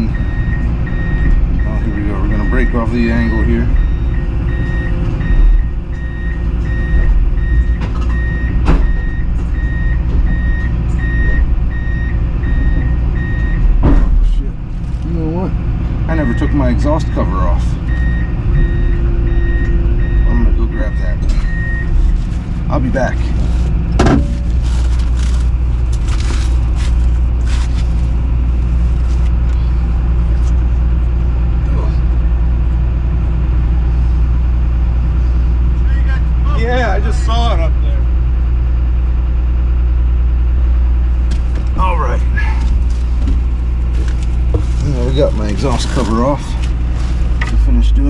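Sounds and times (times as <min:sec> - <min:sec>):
excavator travel alarm beeping: 0:00.0 - 0:13.8, 0:16.0 - 0:22.2, 0:44.8 - 0:46.5
diesel engine running: 0:00.0 - 0:48.0
scuffs and scrapes: 0:21.9 - 0:29.4, 0:42.4 - 0:47.5
sharp metal clank: 0:24.0 - 0:24.5.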